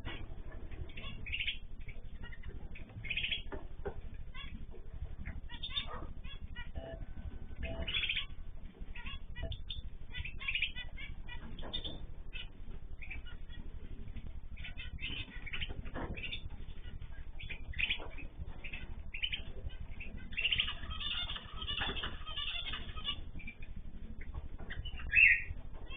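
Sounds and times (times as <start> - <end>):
small birds chirping and calling: 0.0 - 25.9
steady low hum: 0.0 - 25.9.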